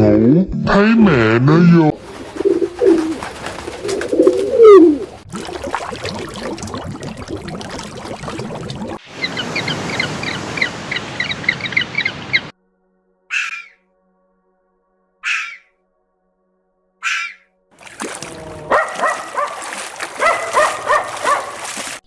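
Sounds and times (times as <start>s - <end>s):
low gliding animal calls: 2.3s - 5.2s.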